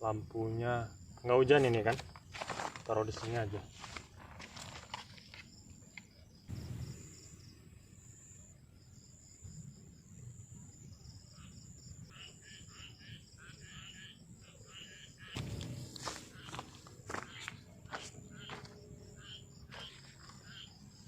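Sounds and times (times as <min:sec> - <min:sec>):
insects trilling: 0:00.0 - 0:21.0
rapid pulsed insect chirp: 0:00.0 - 0:21.0
rhythmic lower chirps: 0:14.8 - 0:19.9
low thump: 0:15.4 - 0:16.7.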